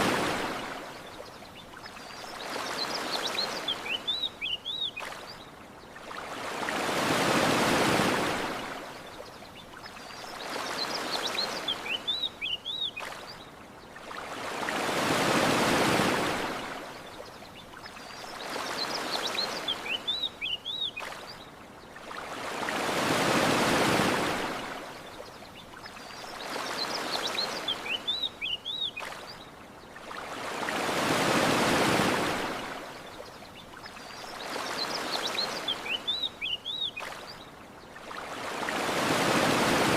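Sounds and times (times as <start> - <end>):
ocean waves washing onto beach: 0.0 - 39.9
bird chirps: 1.6 - 5.5, 9.6 - 13.4, 17.6 - 21.2, 25.5 - 29.4, 33.5 - 37.5.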